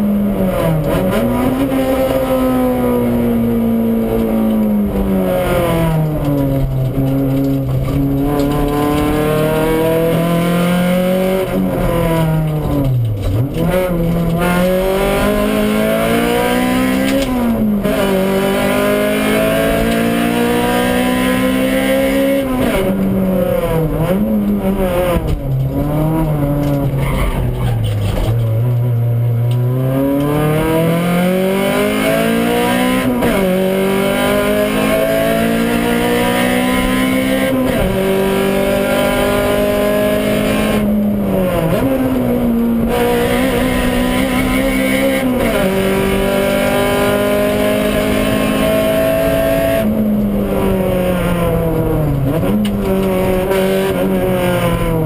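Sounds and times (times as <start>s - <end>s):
car engine accelerating: 0.0s - 55.0s.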